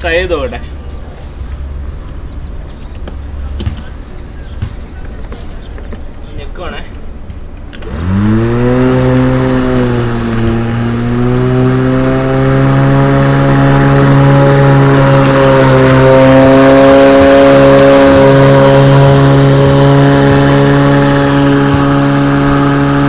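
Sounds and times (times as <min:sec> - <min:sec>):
electric lawn mower motor whining: 0:07.7 - 0:23.0.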